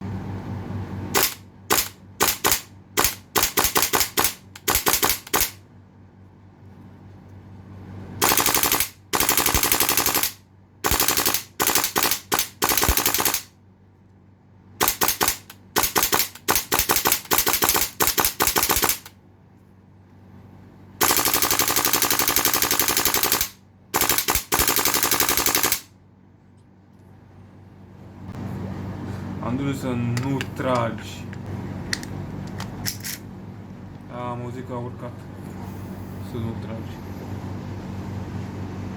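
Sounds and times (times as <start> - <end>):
airsoft rifle full-auto bursts: 1.2 - 5.6, 8.2 - 13.5, 14.8 - 19.1, 21.0 - 25.9.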